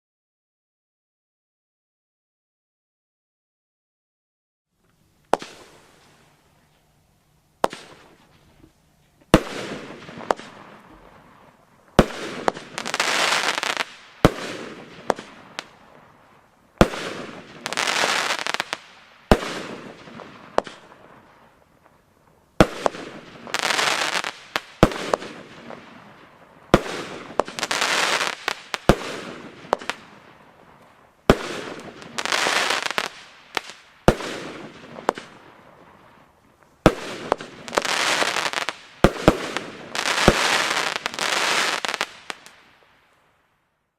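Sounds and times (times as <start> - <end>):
firework shots banging: 5.3 - 5.9, 7.6 - 8.3, 9.3 - 11.2, 12.0 - 16.0, 16.8 - 21.1, 22.6 - 26.1, 26.8 - 36.0, 36.9 - 42.5
firework burst noise: 12.0 - 16.2, 16.8 - 21.6, 36.8 - 42.5.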